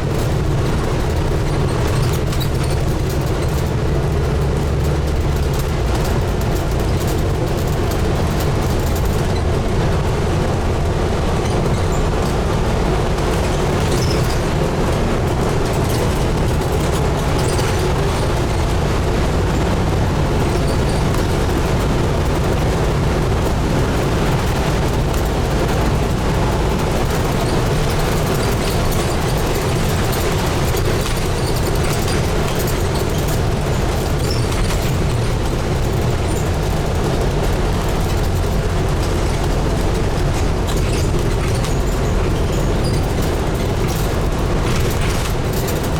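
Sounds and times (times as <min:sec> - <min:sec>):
bus diesel engine droning: 0:00.0 - 0:45.9
road and body noise: 0:00.0 - 0:45.9.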